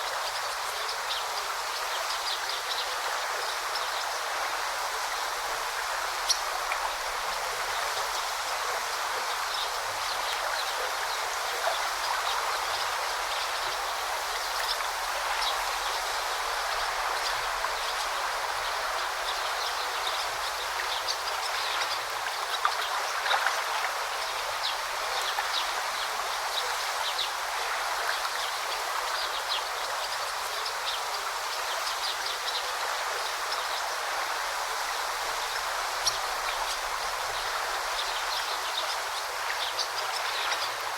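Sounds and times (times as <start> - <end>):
forest stream flowing: 0.0 - 40.9.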